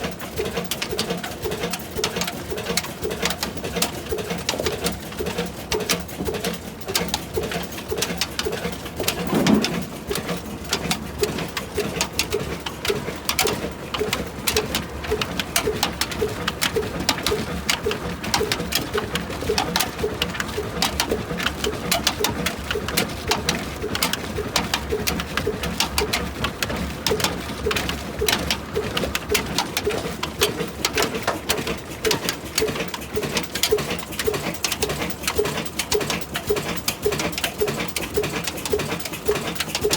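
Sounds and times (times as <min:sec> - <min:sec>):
stationary engine running: 0:04.1 - 0:19.6
loud thump: 0:09.2 - 0:10.3.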